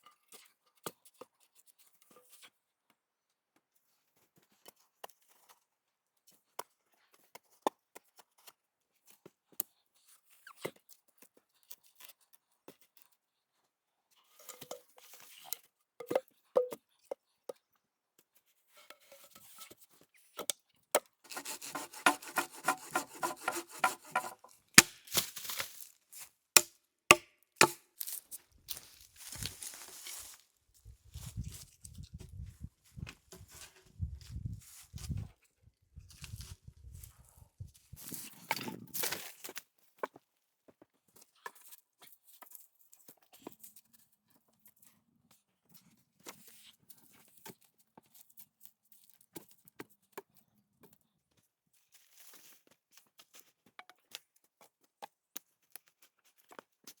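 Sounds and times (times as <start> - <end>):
tool scraping wood: 21.3 - 25.0
sharp knocks on wood: 21.7 - 24.9
twigs cracking and rustling: 24.4 - 26.3, 27.6 - 32.1.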